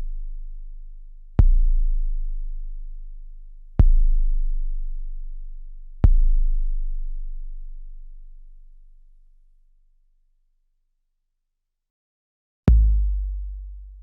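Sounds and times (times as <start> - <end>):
deep sub-bass drum hits: 12.7 - 14.0.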